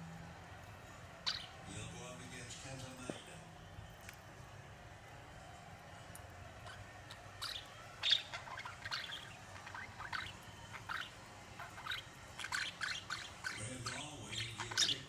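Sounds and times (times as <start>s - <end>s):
budgerigars chirping: 1.3s - 1.6s, 7.4s - 15.0s.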